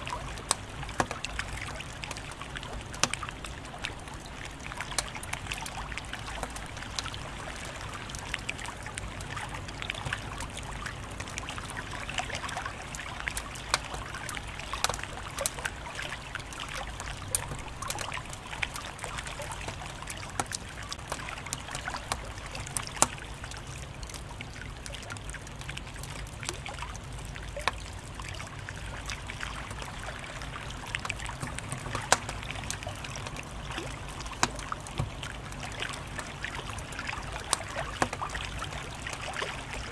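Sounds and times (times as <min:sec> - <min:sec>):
wood fire crackling: 0:10.2 - 0:39.9
fire pops: 0:31.0 - 0:36.3.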